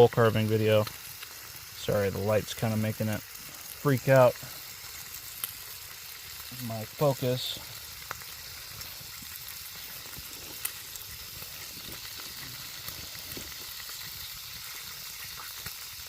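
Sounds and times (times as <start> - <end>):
bacon sizzling: 0.0 - 16.0
fat popping: 8.1 - 15.8.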